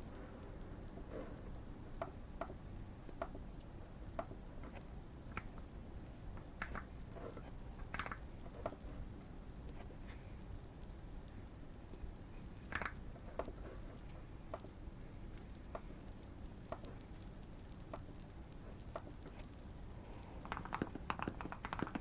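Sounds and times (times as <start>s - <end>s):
fireplace crackling: 0.0s - 22.0s.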